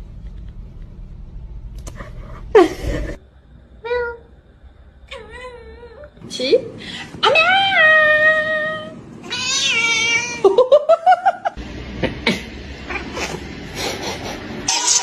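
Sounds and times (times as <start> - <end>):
cat meowing: 7.3 - 10.4.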